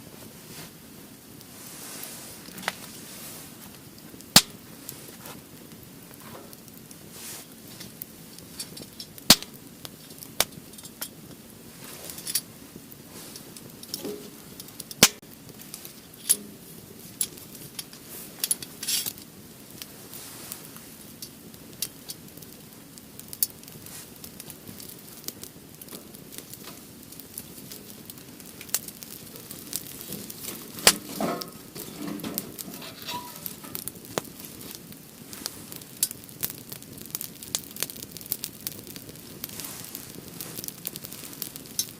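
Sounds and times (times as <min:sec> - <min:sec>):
wood fire crackling: 0:00.0 - 0:41.9
clinking: 0:30.9 - 0:33.8.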